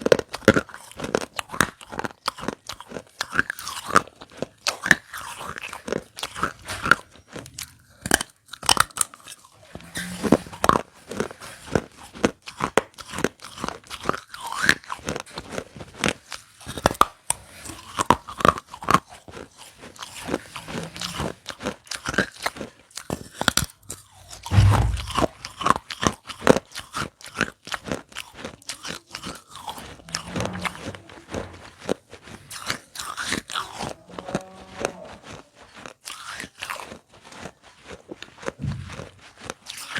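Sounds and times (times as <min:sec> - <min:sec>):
clay pieces being chewed: 0:00.0 - 0:24.6, 0:25.2 - 0:39.9
low thump: 0:24.4 - 0:25.4.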